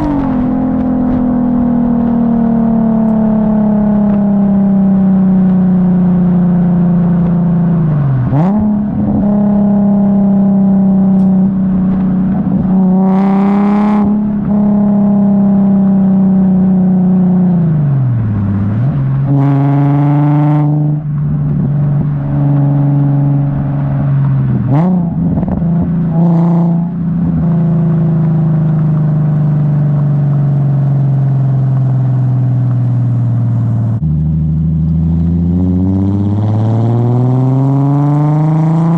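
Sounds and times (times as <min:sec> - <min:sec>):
car exhaust engine note: 0:00.0 - 0:38.9.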